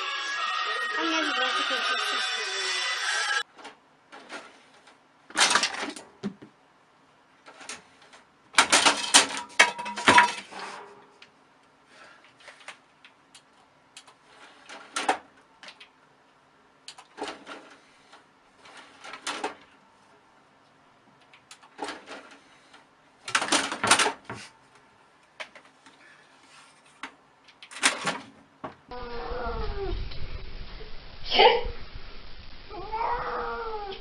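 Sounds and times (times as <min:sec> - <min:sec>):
knocks and clatter: 0:08.6 - 0:10.9
cat meowing: 0:32.7 - 0:34.0.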